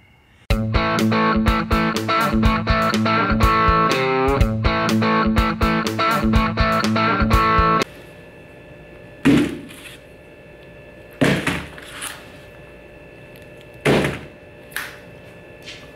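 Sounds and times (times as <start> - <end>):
guitar music: 0.5 - 7.8.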